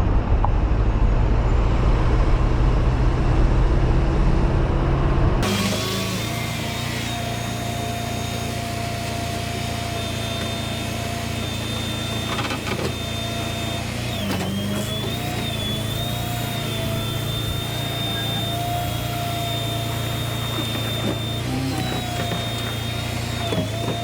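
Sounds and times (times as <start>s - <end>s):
truck engine and road drone: 0.0s - 24.0s
thin mechanical whine: 5.4s - 24.0s.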